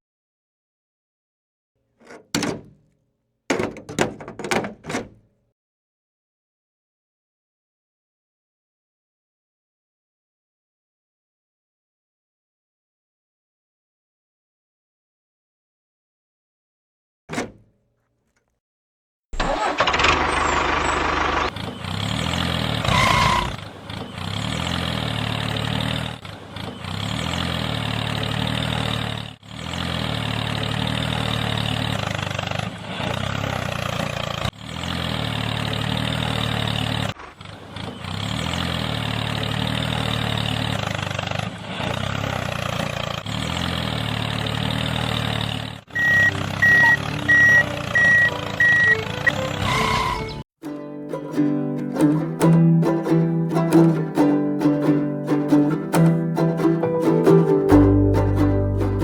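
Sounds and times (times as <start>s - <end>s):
motor running: 19.4s - 33.1s
high electronic beeps: 45.9s - 50.3s.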